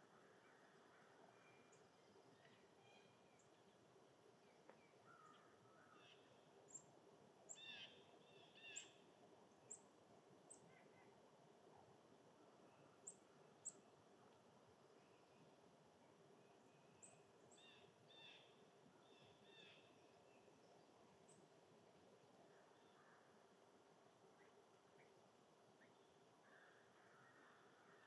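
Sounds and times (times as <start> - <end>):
background hiss: 0.0 - 28.0
small birds chirping: 7.5 - 9.0, 12.7 - 13.9.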